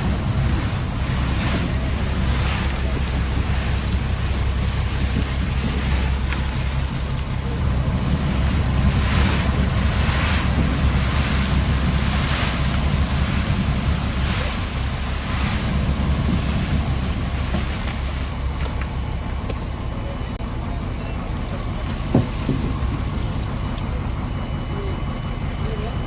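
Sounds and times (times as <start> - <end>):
wind buffeting microphone: 0.0 - 19.9
sea splashing against hull: 0.0 - 20.3
boat engine low rumble: 0.0 - 26.0.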